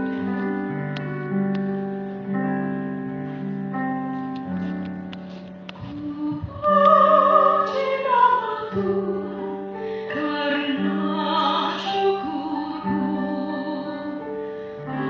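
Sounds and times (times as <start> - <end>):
instrumental backing: 0.0 - 15.0
woman singing with vibrato: 5.9 - 14.3.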